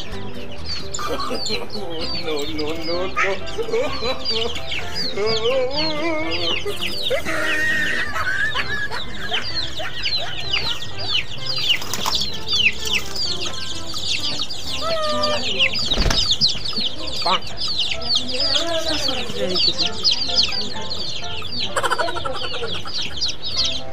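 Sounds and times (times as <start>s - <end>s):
chicks peeping: 0.0s - 23.9s
dull bump: 15.9s - 16.6s.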